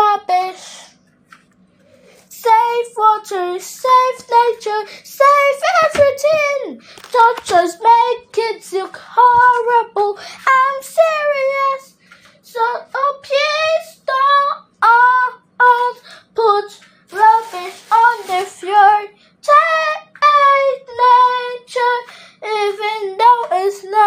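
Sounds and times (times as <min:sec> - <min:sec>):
child singing: 0:00.0 - 0:00.6, 0:02.3 - 0:24.0.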